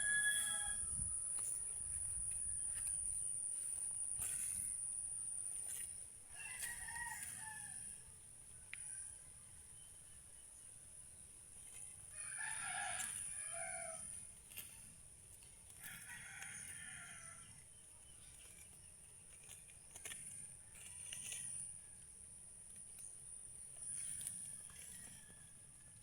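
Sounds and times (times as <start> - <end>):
rooster crowing: 0.0 - 1.2, 6.3 - 8.0, 12.1 - 14.1, 15.8 - 17.5.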